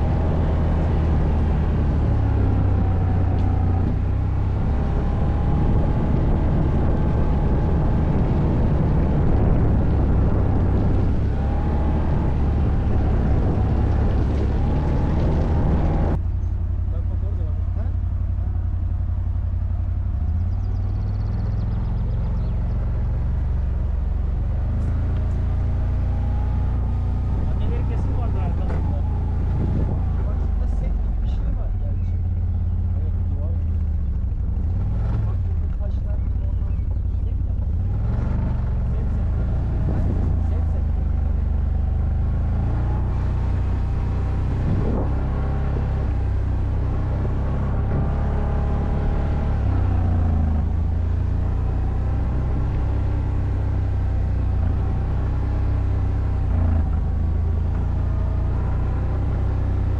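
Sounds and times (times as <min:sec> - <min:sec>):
atv engine droning: 0:00.0 - 0:59.9.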